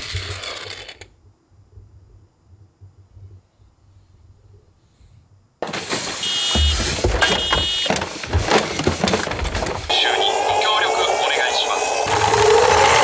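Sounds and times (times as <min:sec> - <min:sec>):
toy truck rolling on wooden floor: 0:00.0 - 0:01.2, 0:05.6 - 0:13.0
toy truck engine sound effect: 0:05.6 - 0:07.9, 0:09.9 - 0:13.0.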